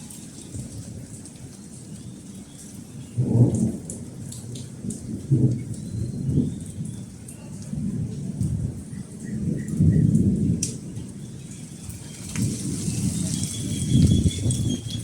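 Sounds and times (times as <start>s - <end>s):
raindrops ticking: 0.0s - 15.0s
steady rain: 0.0s - 15.0s
thunder rumbling: 7.7s - 15.0s.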